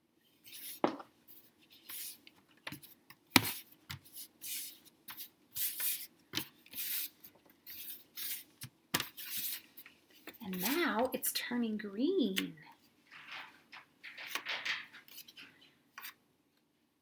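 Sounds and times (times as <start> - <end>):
hands kneading dough: 0.6 - 11.2
rubbing and scraping: 13.0 - 16.2.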